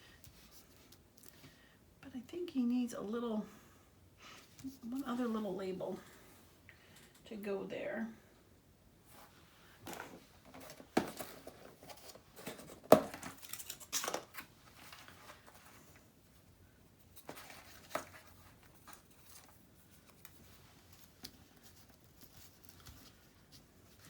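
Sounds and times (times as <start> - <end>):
paper rustling: 9.8 - 16.0, 17.0 - 24.0.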